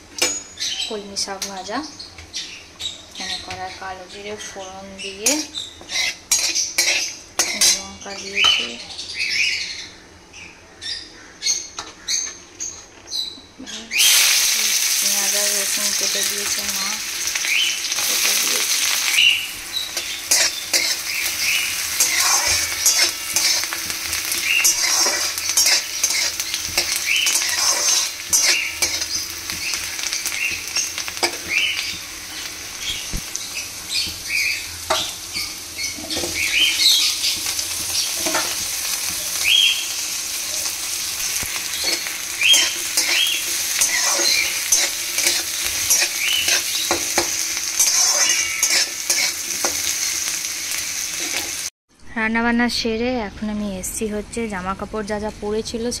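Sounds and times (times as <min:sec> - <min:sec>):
oil sizzling in a pan: 0:03.2 - 0:08.8, 0:13.9 - 0:51.7
metal spatula scraping a pan: 0:05.2 - 0:08.0, 0:19.7 - 0:29.7, 0:41.3 - 0:50.2.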